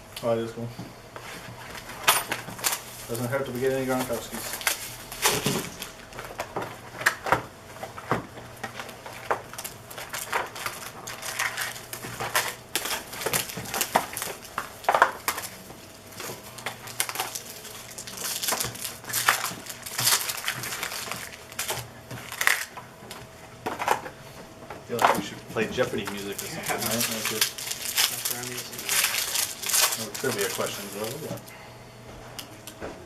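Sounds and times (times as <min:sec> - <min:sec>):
wrappers tearing and crinkling: 0:01.8 - 0:07.3, 0:08.6 - 0:22.8, 0:25.2 - 0:31.5
cards handled: 0:26.0 - 0:31.4.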